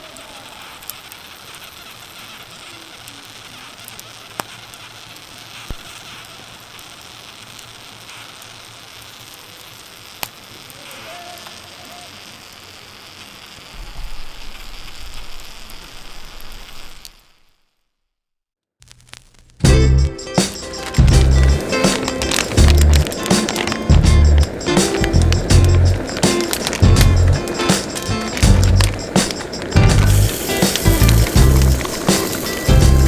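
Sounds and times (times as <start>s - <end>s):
campfire hissing and popping: 0.0s - 17.8s, 18.8s - 33.0s
low rumble: 21.0s - 21.6s, 22.6s - 23.1s, 23.9s - 26.1s, 26.8s - 27.4s, 28.4s - 29.1s, 29.8s - 31.9s.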